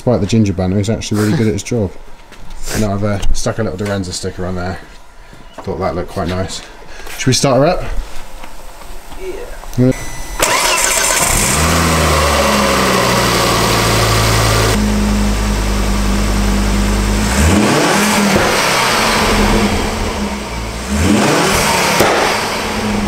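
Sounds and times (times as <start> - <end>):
car engine idling and revving: 10.4 - 23.0.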